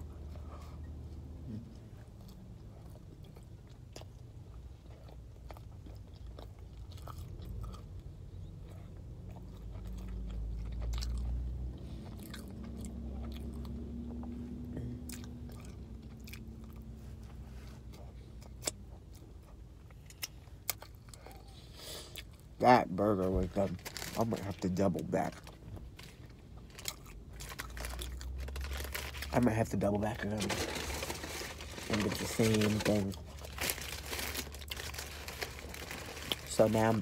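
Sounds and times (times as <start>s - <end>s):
chewing food: 1.5s - 22.6s, 25.4s - 29.2s.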